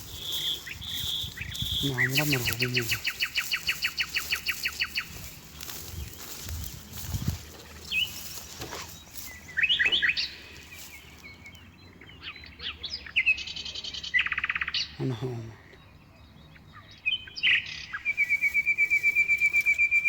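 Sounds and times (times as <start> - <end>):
buzzy bird trill: 0.0 - 11.0
small birds chirping: 0.0 - 20.0.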